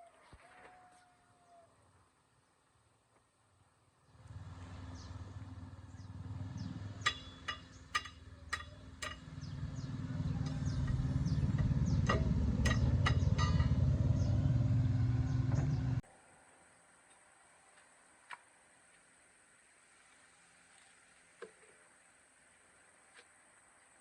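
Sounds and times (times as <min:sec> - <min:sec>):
motor low rumble: 0:04.1 - 0:16.0
sharp metallic knocks: 0:06.7 - 0:15.8.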